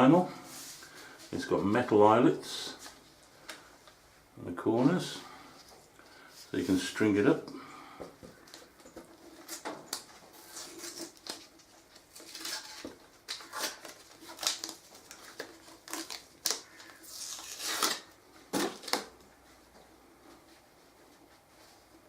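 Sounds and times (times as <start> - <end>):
plastic rustling and crinkling: 8.2 - 19.3.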